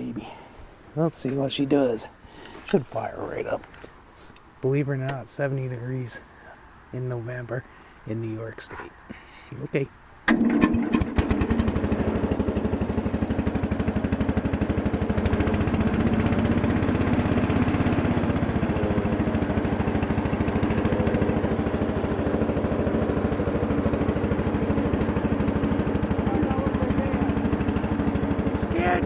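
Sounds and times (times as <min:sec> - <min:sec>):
garden tractor engine idling: 0:10.3 - 0:29.0.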